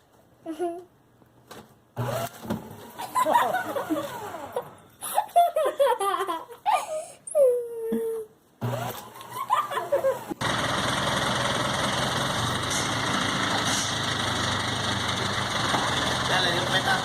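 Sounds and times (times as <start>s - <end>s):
person laughing: 0.4s - 0.9s, 3.0s - 8.2s, 9.2s - 10.4s.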